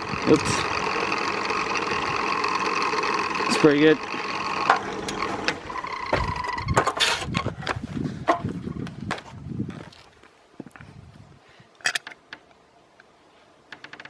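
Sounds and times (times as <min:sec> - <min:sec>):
small electric motor whining: 0:00.0 - 0:07.0.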